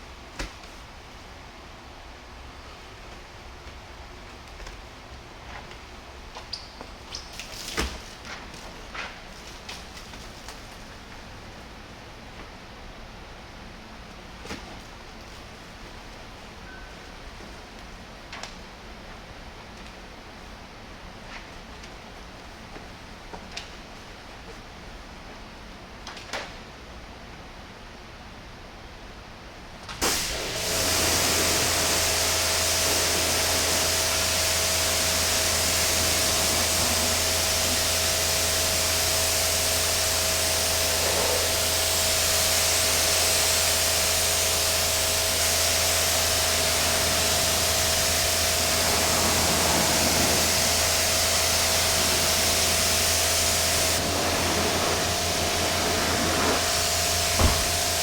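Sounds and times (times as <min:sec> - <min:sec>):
electric blower running: 0:30.0 - 0:58.0.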